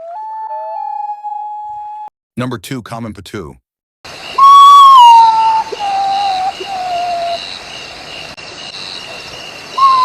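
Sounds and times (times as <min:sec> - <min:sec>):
bird whistled song: 0:04.3 - 0:07.5, 0:09.8 - 0:10.0.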